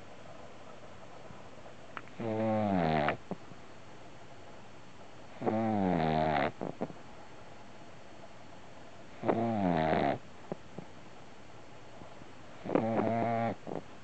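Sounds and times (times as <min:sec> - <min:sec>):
puppy snoring: 0:02.1 - 0:03.4, 0:05.3 - 0:07.0, 0:09.1 - 0:10.9, 0:12.6 - 0:13.9.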